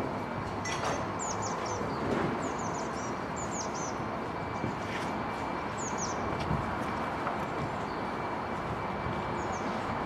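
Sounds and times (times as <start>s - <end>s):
slow-moving train noise: 0.0s - 10.0s
small birds chirping: 1.2s - 4.0s, 5.7s - 6.3s.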